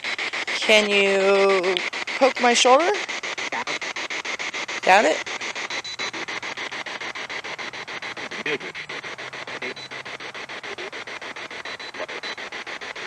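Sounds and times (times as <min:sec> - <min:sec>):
choppy radio static: 0:00.0 - 0:13.0
snatches of broadcast sound: 0:00.0 - 0:13.0.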